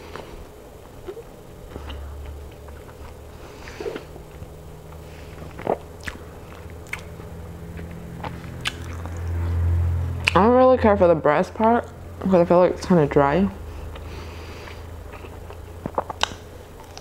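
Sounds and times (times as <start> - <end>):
close chewing with mouth clicks: 0.1 - 9.6, 13.8 - 17.0.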